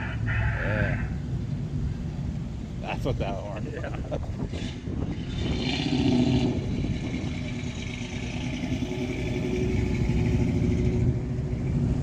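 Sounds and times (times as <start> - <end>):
car engine driving off: 4.6 - 11.8.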